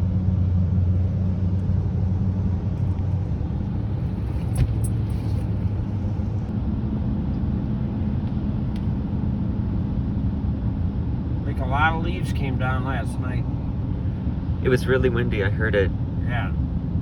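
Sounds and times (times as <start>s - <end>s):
car cabin rumble: 0.0s - 17.0s.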